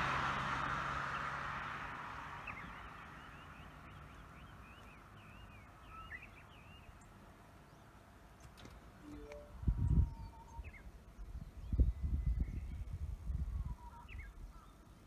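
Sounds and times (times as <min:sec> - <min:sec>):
small birds chirping: 0:02.4 - 0:08.2, 0:09.1 - 0:15.0.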